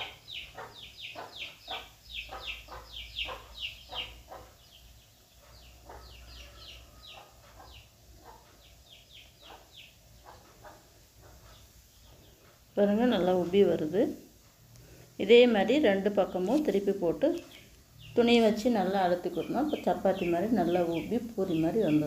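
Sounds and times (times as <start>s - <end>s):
small birds peeping: 0.0s - 22.0s.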